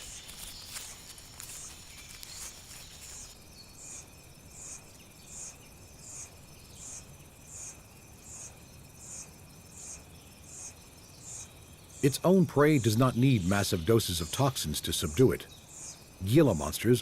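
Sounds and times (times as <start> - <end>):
faint rustles: 0.0 - 3.5
high insect drone: 0.0 - 17.0
insect chirping: 0.0 - 17.0.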